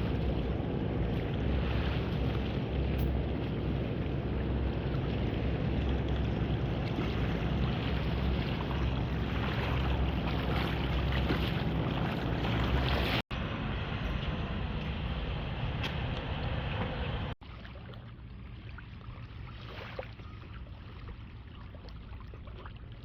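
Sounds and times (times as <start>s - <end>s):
boat motor running: 0.0s - 17.4s.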